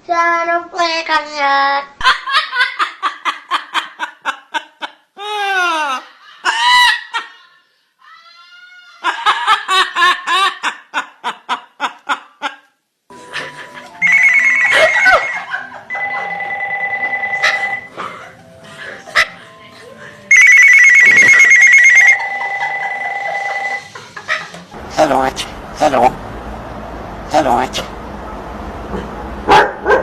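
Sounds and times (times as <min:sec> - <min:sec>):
swooping falling cries: 0:14.0 - 0:15.6.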